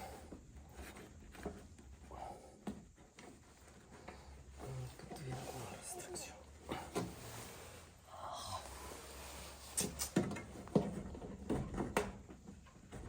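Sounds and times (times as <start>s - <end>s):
soft rustle: 0.0s - 11.4s.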